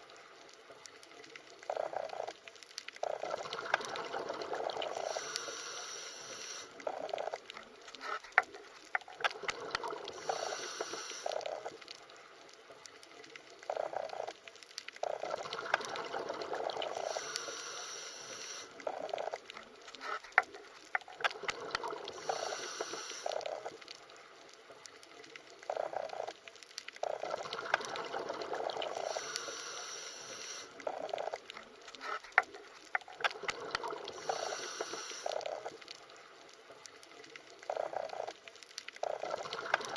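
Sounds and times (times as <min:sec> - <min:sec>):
underwater bubbling: 0:00.0 - 0:39.9.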